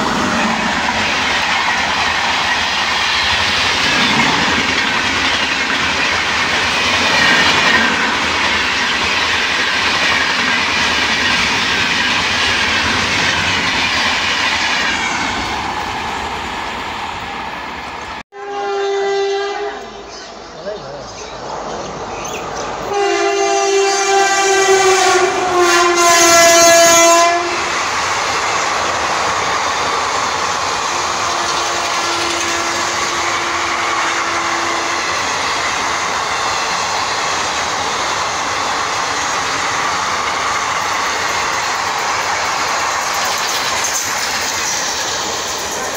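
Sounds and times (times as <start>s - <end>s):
train coaches rushing past: 0.0s - 45.9s
locomotive horn: 18.3s - 20.1s, 22.9s - 27.7s, 31.0s - 35.2s.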